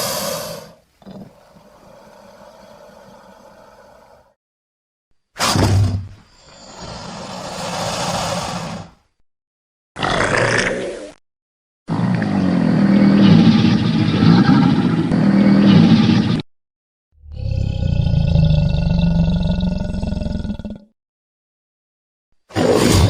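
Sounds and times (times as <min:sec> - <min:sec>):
hissing growl: 0:06.5 - 0:09.0
animal roar: 0:10.0 - 0:11.1, 0:11.9 - 0:16.4, 0:17.2 - 0:20.9
deep wavering growling roar: 0:11.9 - 0:16.4, 0:17.2 - 0:20.9.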